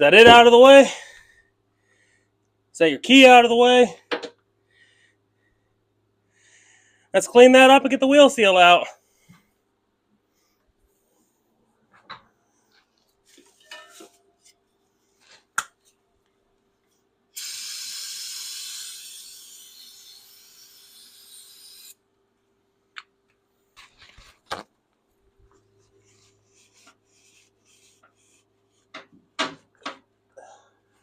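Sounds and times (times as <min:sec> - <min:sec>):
aerosol spray hissing: 0:17.4 - 0:21.9.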